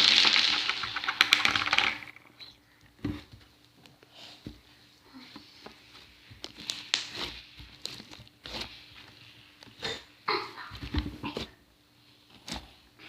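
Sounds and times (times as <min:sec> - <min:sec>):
slime squishing: 0:05.9 - 0:09.8.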